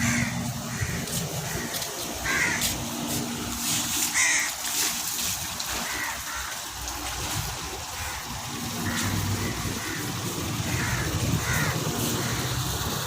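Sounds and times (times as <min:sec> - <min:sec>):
crow cawing: 0:00.0 - 0:02.8, 0:04.0 - 0:04.7, 0:05.7 - 0:06.8, 0:07.8 - 0:12.6.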